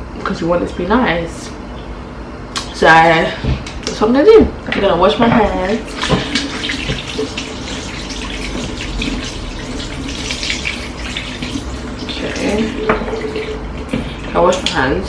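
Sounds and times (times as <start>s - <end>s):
tap running: 3.4s - 14.9s
water splashing on hands: 5.6s - 14.8s.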